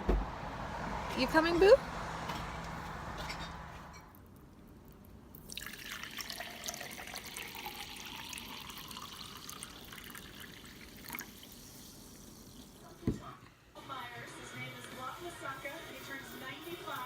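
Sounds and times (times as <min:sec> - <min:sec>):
water trickling and dripping: 0:04.1 - 0:13.0.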